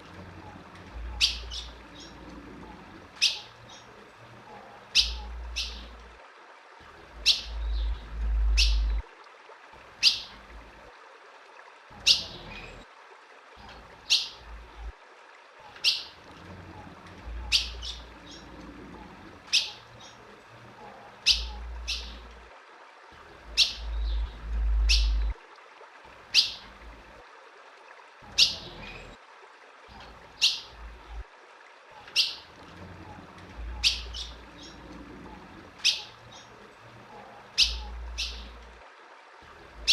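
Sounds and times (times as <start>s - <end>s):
bird chirping: 1.1s - 2.3s, 4.9s - 6.0s, 7.2s - 9.0s, 17.4s - 18.5s, 21.2s - 22.2s, 23.5s - 25.4s, 33.6s - 34.9s, 35.8s - 36.5s, 37.6s - 38.6s
low rumble: 7.5s - 9.0s, 23.8s - 25.4s.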